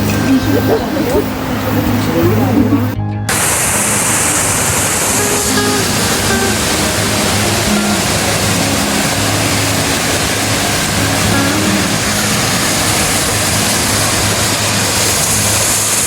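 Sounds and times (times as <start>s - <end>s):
faint background music: 0.0s - 16.0s
waterfall rushing: 0.0s - 16.0s.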